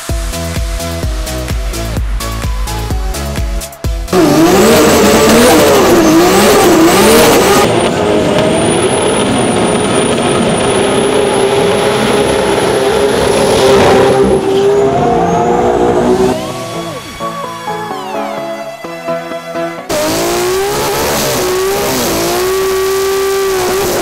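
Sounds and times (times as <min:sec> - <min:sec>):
electronic dance music: 0:00.0 - 0:07.8, 0:12.6 - 0:24.0
race car engine revving: 0:04.1 - 0:17.6, 0:19.9 - 0:24.0.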